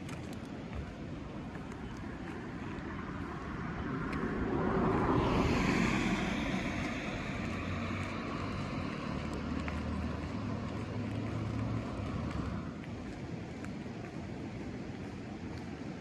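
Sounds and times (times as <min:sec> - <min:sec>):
car passing by: 0:02.8 - 0:12.8.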